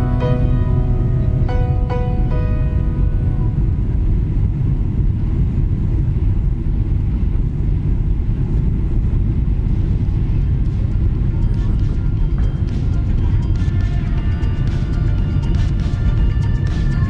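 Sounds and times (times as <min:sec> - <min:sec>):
harp-like music: 0:00.0 - 0:04.2
airliner cabin engine rumble: 0:00.0 - 0:17.0.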